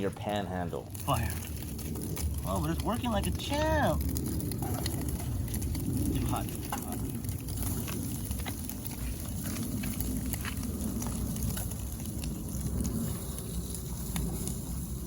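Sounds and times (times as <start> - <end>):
bacon sizzling and popping: 0.0 - 15.0
stove low rumble: 0.0 - 15.0.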